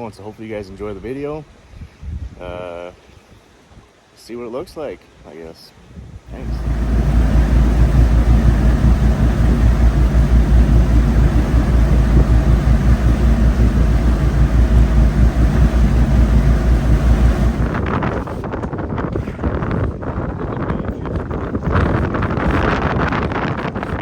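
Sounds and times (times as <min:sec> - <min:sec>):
wind buffeting microphone: 0:05.9 - 0:24.0
boat motor humming: 0:06.3 - 0:18.5.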